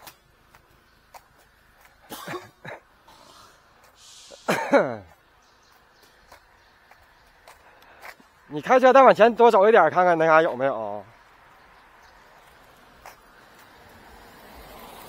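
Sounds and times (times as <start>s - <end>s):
man coughing: 2.0s - 2.9s, 4.3s - 5.2s
man's short vocal noises: 2.1s - 5.2s.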